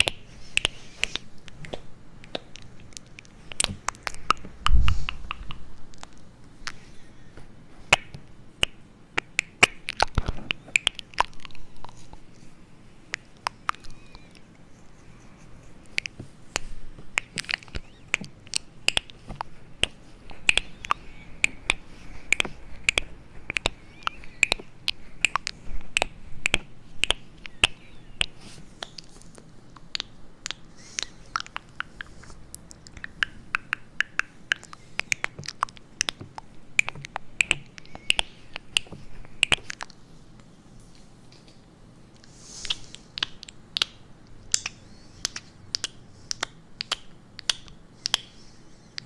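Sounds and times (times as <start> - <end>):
sharp clicks and taps: 15.9 - 30.6, 31.4 - 39.9.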